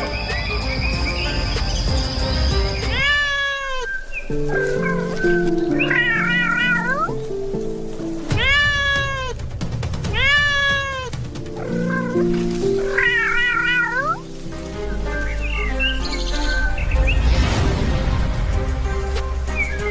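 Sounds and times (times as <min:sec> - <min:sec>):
background music: 0:00.0 - 0:19.9
kitten meowing: 0:02.9 - 0:07.2, 0:08.3 - 0:09.4, 0:10.1 - 0:14.2.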